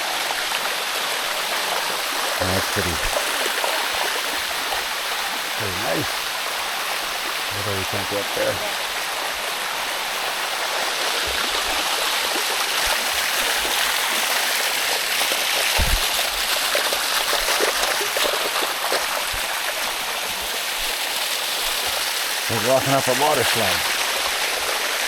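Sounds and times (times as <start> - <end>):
waterfall rushing over rock: 0.0 - 25.0
short low thump: 15.8 - 16.2.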